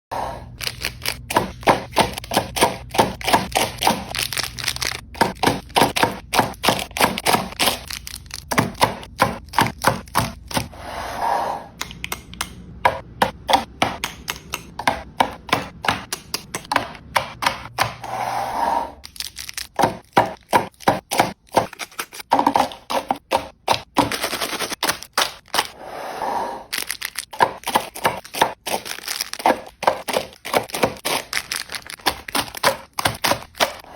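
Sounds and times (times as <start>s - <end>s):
plastic wrapper crinkling: 0.6s - 1.3s, 4.0s - 5.2s, 7.6s - 8.5s, 19.0s - 19.8s, 26.7s - 27.8s, 28.6s - 33.7s
snack packages clicking and clacking: 0.6s - 10.7s, 19.0s - 25.8s, 26.7s - 33.9s.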